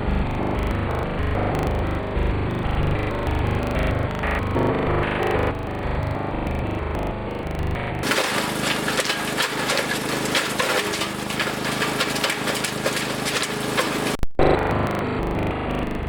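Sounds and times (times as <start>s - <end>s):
wood chipper engine hum: 8.0s - 14.2s
wood cracking and snapping: 8.0s - 14.2s.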